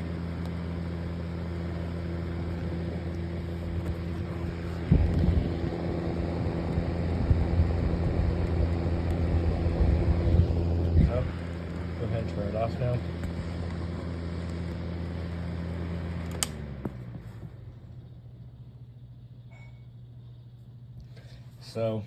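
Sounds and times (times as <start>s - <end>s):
fan heater motor humming: 0.0s - 22.0s
air buffeting microphone: 1.9s - 14.0s.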